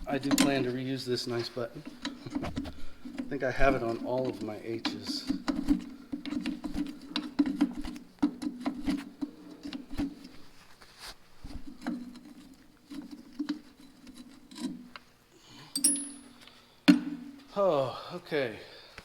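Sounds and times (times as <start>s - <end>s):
hand tools clicking and tapping metal: 0.2s - 0.7s, 1.8s - 10.2s, 11.8s - 15.1s, 15.7s - 16.6s.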